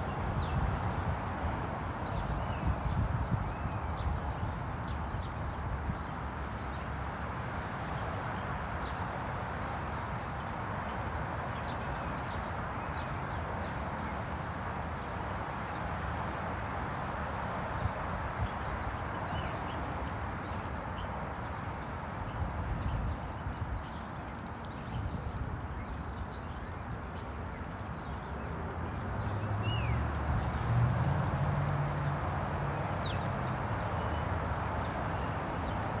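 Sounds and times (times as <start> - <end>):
small birds chirping: 22.6 - 36.0
birds splashing in water: 28.3 - 36.0.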